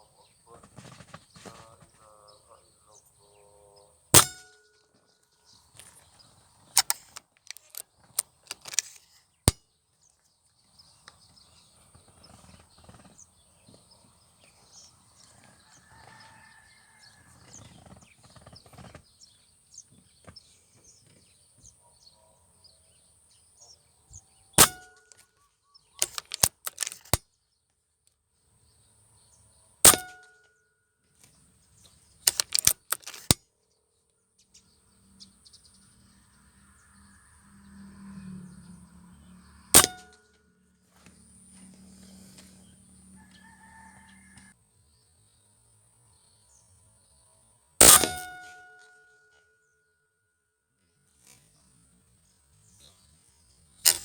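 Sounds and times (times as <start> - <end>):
sharp metallic clicks: 4.2 - 4.8, 6.8 - 9.6, 24.6 - 25.2, 26.0 - 27.2, 29.8 - 30.4, 32.3 - 33.4, 39.7 - 40.2, 47.8 - 49.0.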